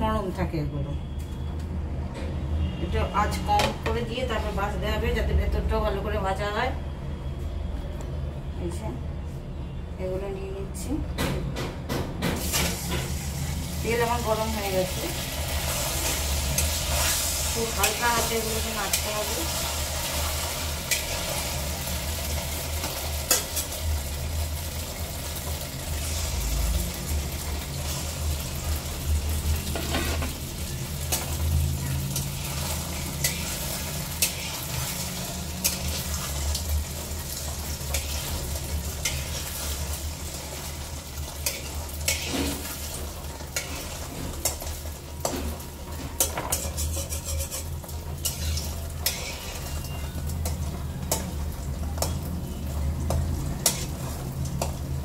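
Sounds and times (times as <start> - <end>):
food deep-frying in hot oil: 12.3 - 55.0
metal spoon tapping and scraping: 46.2 - 51.4, 53.0 - 54.0.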